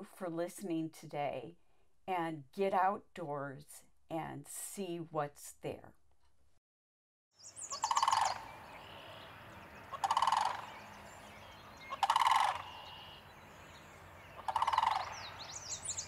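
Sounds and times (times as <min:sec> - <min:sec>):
small birds chirping faintly: 0:07.4 - 0:16.0
bird rapid rattling call: 0:07.5 - 0:09.2, 0:09.9 - 0:11.0, 0:11.8 - 0:13.2, 0:14.4 - 0:16.0.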